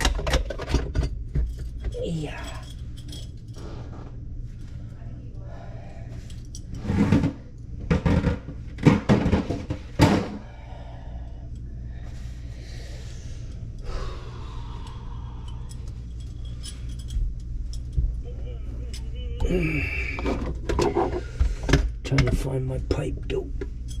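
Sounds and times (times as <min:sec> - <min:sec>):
tools clattering and rattling: 0:00.0 - 0:03.8, 0:15.5 - 0:18.2
low hum: 0:00.0 - 0:24.0.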